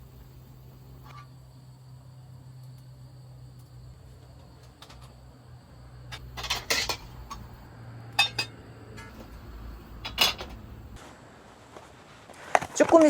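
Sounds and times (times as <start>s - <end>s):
steady low hum: 0.0s - 11.5s
dishes and utensils clinking: 6.2s - 11.0s
short metallic ring: 8.2s - 9.4s.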